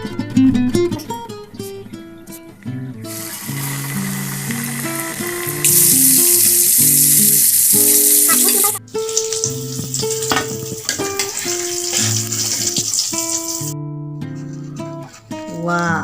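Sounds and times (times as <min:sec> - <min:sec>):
battered chicken sizzling in oil: 0:03.1 - 0:13.8.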